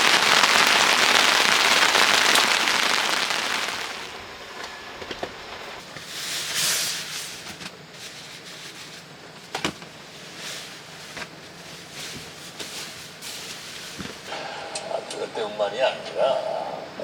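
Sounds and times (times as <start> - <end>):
rain hissing: 0.0 - 9.1, 10.2 - 14.6.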